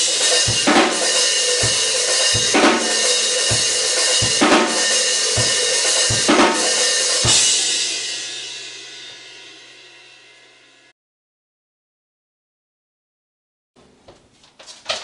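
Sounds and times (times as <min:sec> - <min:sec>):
cymbals ringing: 0:00.0 - 0:09.0
drum kit slow beat: 0:00.0 - 0:09.6.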